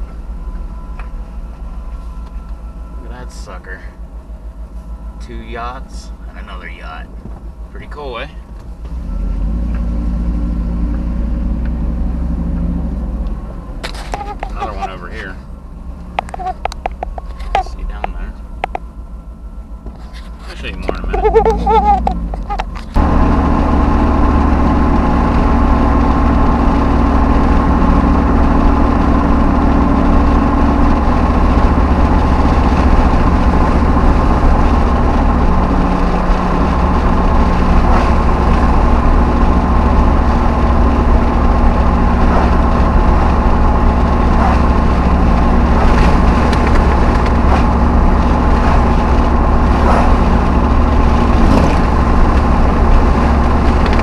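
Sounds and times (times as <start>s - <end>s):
truck engine and road drone: 0.0s - 54.0s.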